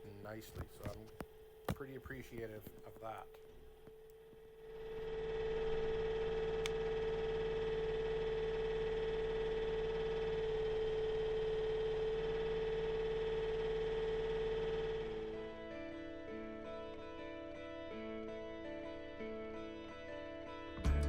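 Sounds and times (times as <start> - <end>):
mini excavator running: 4.6 - 18.2
music: 15.3 - 21.0.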